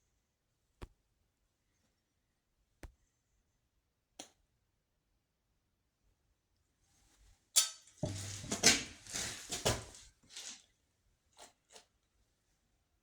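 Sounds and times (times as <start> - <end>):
small stones clicking and scraping: 8.1 - 10.7.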